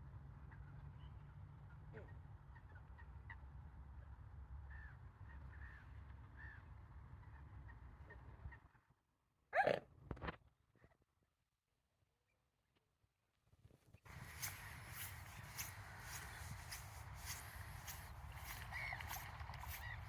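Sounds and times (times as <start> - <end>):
small birds chirping: 14.1 - 20.0
wind rumble: 14.1 - 20.0.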